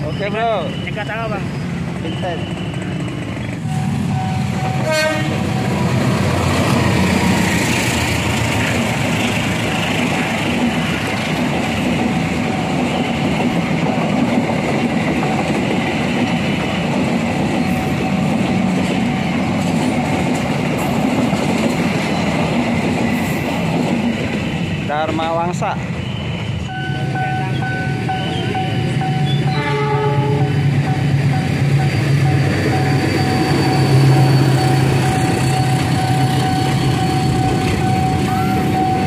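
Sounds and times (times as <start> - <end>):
train wheels rumbling over rails: 0.0 - 39.0
train horn tone: 4.6 - 5.8, 28.2 - 30.6.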